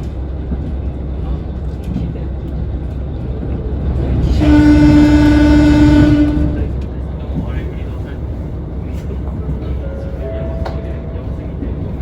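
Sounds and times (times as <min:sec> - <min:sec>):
diesel railcar rumbling: 0:00.0 - 0:12.0
train horn long note: 0:04.2 - 0:06.8.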